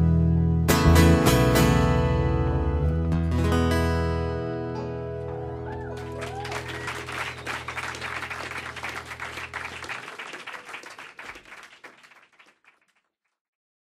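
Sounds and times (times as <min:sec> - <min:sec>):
audience clapping: 0:05.2 - 0:13.4.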